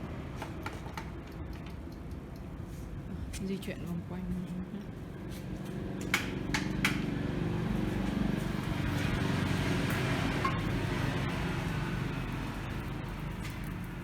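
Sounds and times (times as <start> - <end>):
sharp clicks: 0.9 - 2.5
electric tractor drive humming: 4.8 - 14.0.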